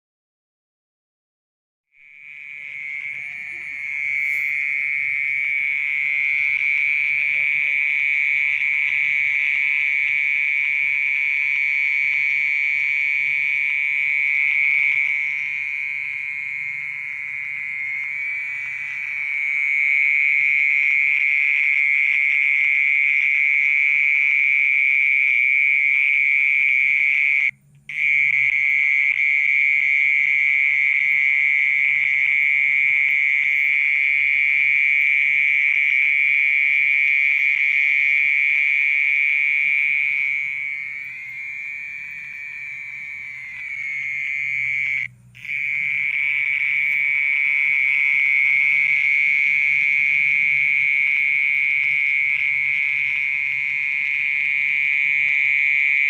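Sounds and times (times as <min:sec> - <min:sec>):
mole cricket buzzing trill: 0:02.0 - 0:56.0.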